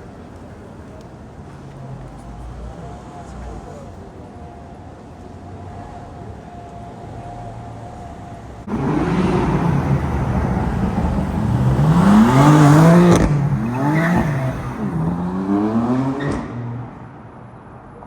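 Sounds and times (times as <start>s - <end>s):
car engine accelerating: 7.1s - 17.3s.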